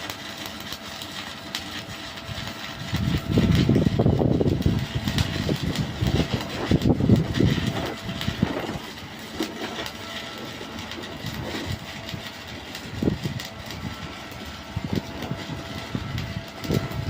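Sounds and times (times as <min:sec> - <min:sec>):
low machine rumble: 0:00.0 - 0:17.0
welding arc crackling and hissing: 0:00.0 - 0:17.0.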